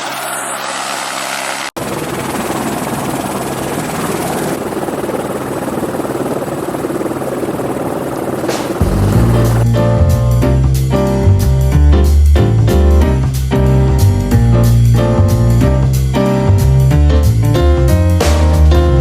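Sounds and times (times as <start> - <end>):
helicopter rotor and turbine drone: 0.0 - 9.7.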